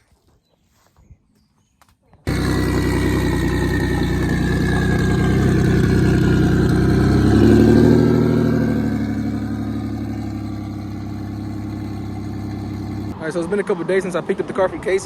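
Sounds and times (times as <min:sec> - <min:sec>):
car engine revving: 0:02.3 - 0:13.2.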